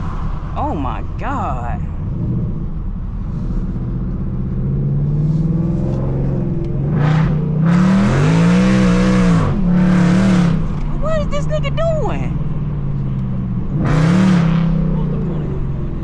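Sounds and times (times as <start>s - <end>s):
loud car engine revving: 1.9s - 11.0s, 12.5s - 16.0s.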